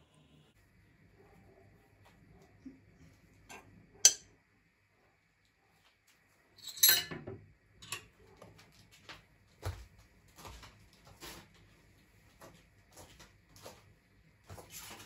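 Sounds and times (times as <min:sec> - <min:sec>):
kitchenware clinking: 0:03.5 - 0:04.3, 0:06.6 - 0:08.1.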